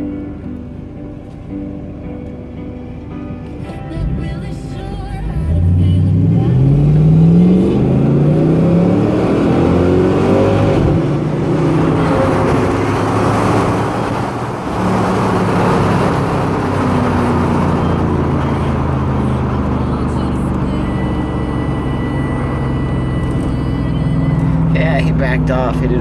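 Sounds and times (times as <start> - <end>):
car engine at full throttle: 0.0 - 26.0
rushing wind and road noise: 5.3 - 26.0.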